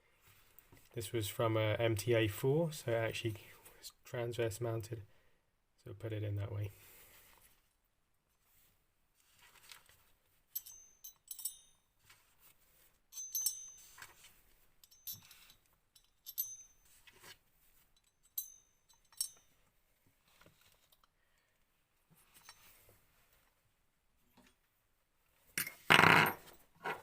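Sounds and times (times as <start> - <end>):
small metal parts clinking: 10.5 - 11.8, 13.1 - 17.3, 18.0 - 19.5.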